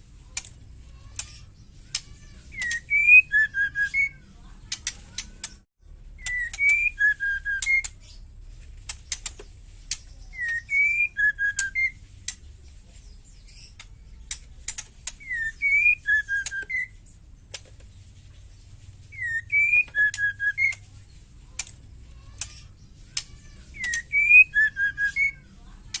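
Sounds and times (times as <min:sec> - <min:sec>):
sharp ticking chatter notes: 0:00.3 - 0:05.6, 0:06.2 - 0:12.6, 0:21.6 - 0:26.0
bird whistled call: 0:02.5 - 0:04.2, 0:06.2 - 0:08.0, 0:10.3 - 0:12.0, 0:15.2 - 0:17.0, 0:19.1 - 0:20.8, 0:23.8 - 0:25.5.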